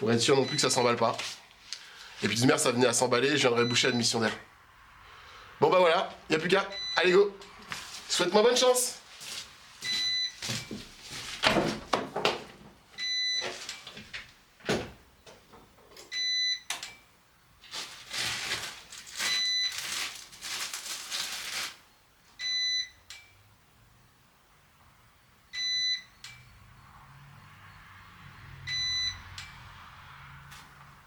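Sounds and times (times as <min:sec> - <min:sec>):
short electronic beep: 0:28.7 - 0:29.2.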